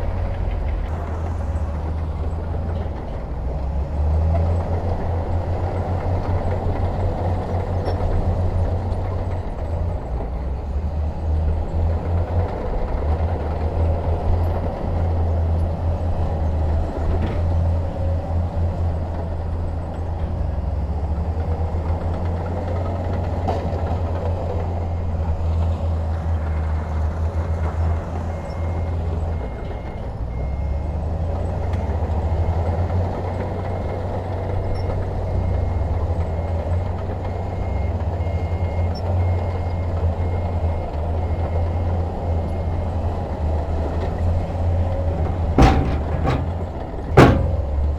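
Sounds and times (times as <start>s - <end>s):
diesel engine rumbling: 0.0s - 47.9s.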